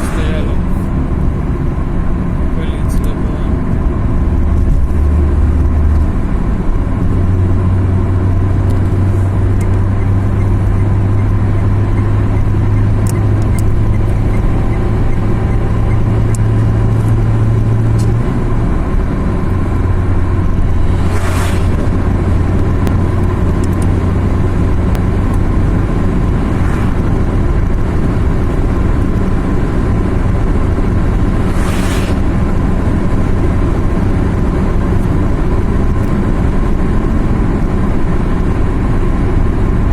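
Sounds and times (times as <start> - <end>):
car engine and road noise: 0.0 - 39.9
brief whooshes: 20.6 - 22.2, 26.4 - 27.2, 31.1 - 32.9.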